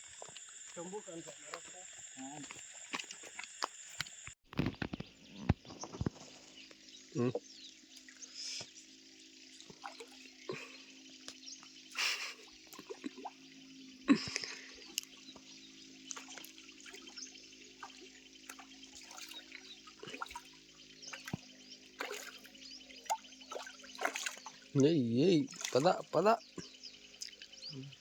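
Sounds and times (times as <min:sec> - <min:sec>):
water splashing and dripping: 0:00.2 - 0:04.1, 0:09.4 - 0:27.5.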